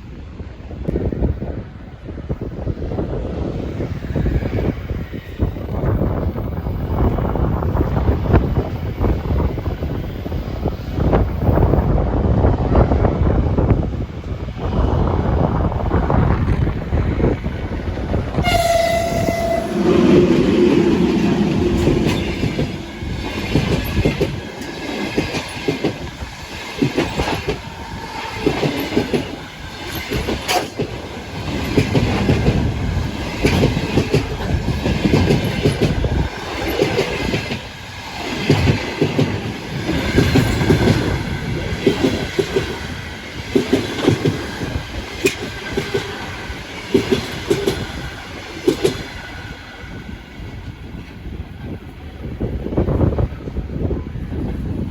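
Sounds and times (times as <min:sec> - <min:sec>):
train wheels clacking over rail joints: 0:18.3 - 0:49.4
train horn: 0:18.4 - 0:22.2.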